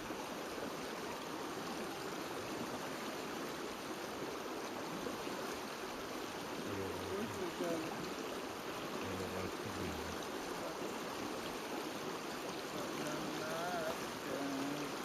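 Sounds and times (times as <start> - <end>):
stream rushing: 0.0 - 15.0
faint voices: 9.0 - 11.0, 12.7 - 15.0.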